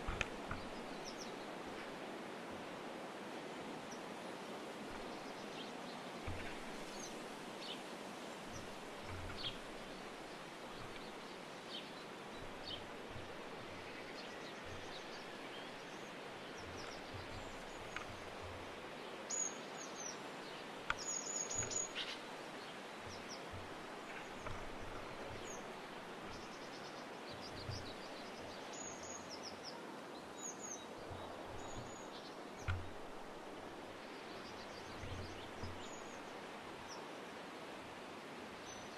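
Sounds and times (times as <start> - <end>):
small birds chirping: 0.0 - 2.0, 3.9 - 37.1
outdoor background noise: 0.0 - 38.9
soft low bumps: 6.2 - 7.4, 8.4 - 11.4, 12.0 - 18.8, 23.0 - 26.6, 31.0 - 34.0, 34.6 - 36.3.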